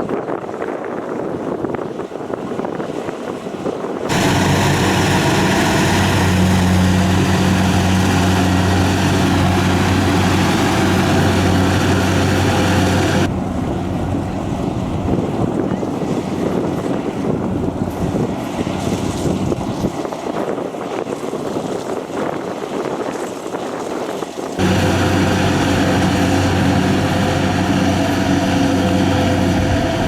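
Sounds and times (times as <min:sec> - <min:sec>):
wind on microphone: 0:00.0 - 0:30.0
combine harvester engine running: 0:04.1 - 0:15.5, 0:24.6 - 0:30.0.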